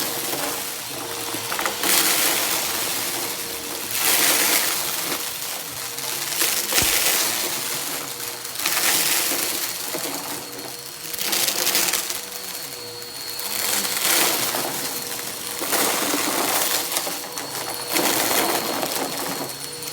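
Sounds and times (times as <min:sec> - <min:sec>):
vacuum cleaner motor hum: 0:00.0 - 0:19.9
debris crunching in vacuum: 0:06.6 - 0:08.2
brief knock: 0:06.8 - 0:07.2.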